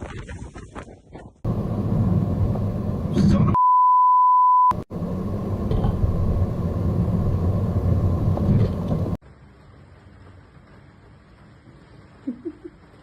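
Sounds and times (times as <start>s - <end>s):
censor bleep: 3.6s - 4.8s.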